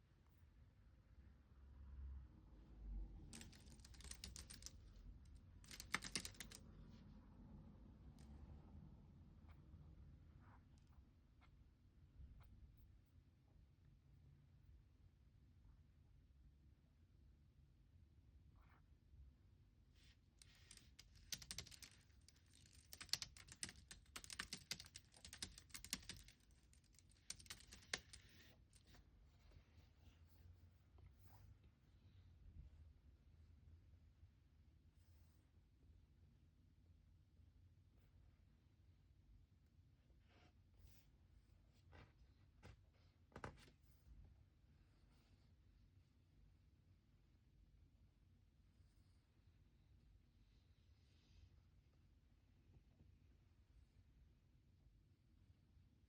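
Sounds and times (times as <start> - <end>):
typing on computer keyboard: 3.3 - 4.9, 5.6 - 6.6, 20.4 - 28.5.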